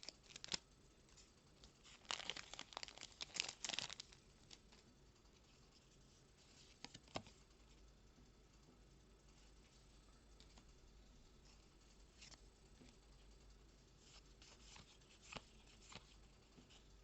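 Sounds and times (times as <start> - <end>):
foil wrapper crinkling and tearing: 0.0 - 0.6, 1.8 - 4.2.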